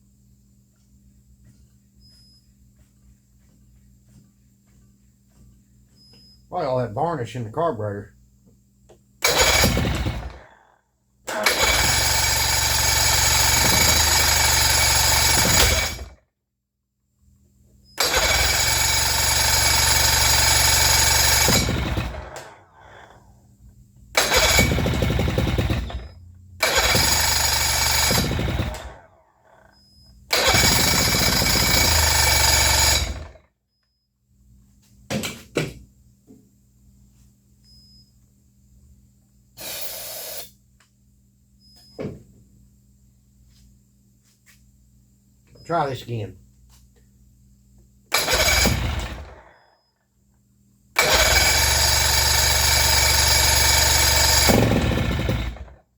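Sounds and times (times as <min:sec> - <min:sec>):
outboard motor running: 0:18.0 - 0:22.3, 0:24.2 - 0:28.9, 0:48.2 - 0:49.3, 0:51.0 - 0:55.7.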